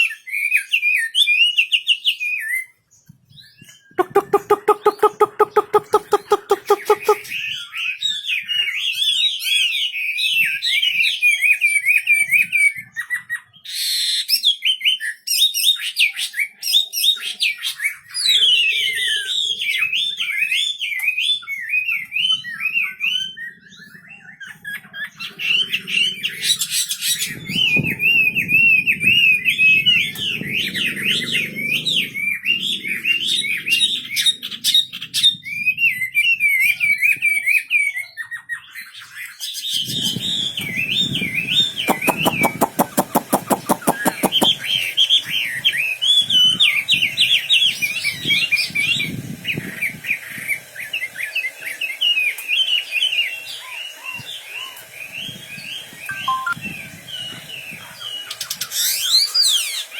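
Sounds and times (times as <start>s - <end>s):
songbird warbling: 4.0s - 7.3s, 41.6s - 45.2s, 56.1s - 56.6s.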